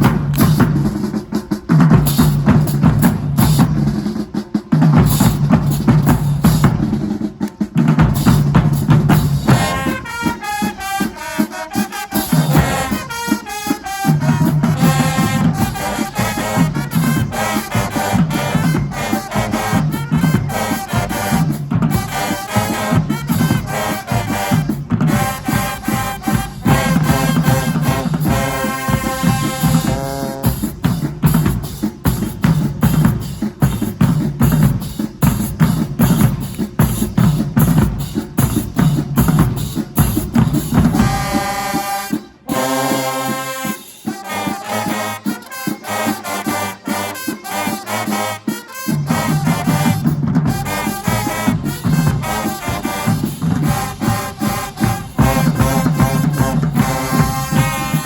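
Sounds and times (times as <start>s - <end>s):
drumline hits: 0.0s - 58.0s
horn section playing: 8.1s - 33.4s, 39.6s - 58.0s
low brass notes: 9.1s - 31.1s, 40.9s - 58.0s.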